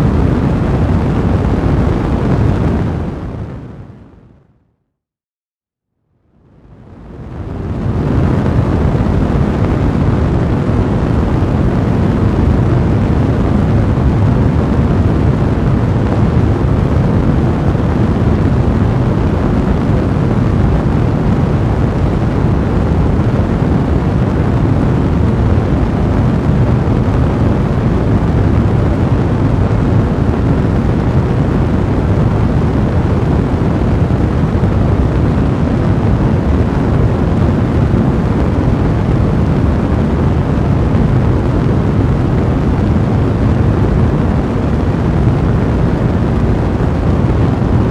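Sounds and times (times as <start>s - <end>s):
fire rumbling and crackling: 0.0s - 4.3s, 6.5s - 47.9s.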